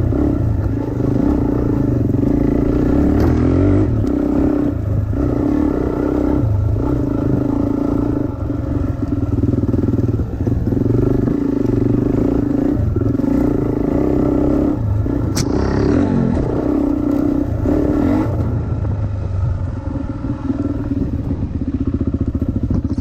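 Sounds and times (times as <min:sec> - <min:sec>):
dirt bike engine under throttle: 0:00.0 - 0:23.0
sharp click: 0:15.2 - 0:15.6.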